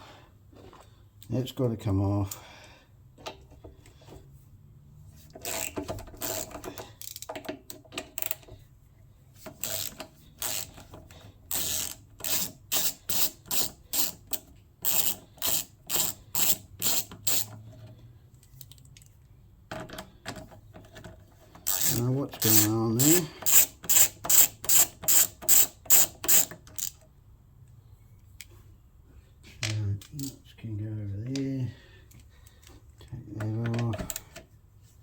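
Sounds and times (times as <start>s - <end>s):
ratchet wrench ratcheting: 5.4s - 7.3s, 8.1s - 8.5s, 9.5s - 17.6s, 21.6s - 27.0s, 30.1s - 30.3s.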